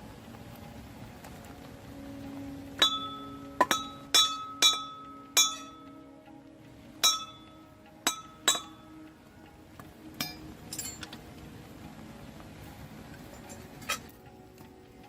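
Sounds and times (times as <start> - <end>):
tools striking metal: 2.8 - 5.8, 7.0 - 8.9, 10.2 - 11.2.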